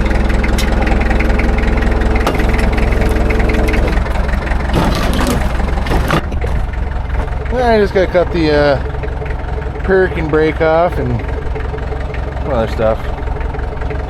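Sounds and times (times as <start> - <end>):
engine idling: 0.0 - 14.0
low hum: 0.0 - 14.0
knocks and clatter: 2.0 - 7.6.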